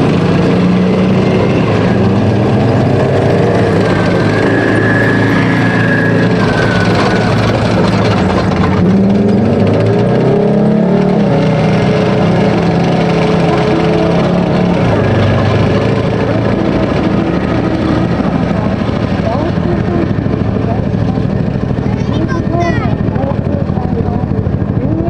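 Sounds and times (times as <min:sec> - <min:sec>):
tank diesel engines passing: 0:00.0 - 0:25.0.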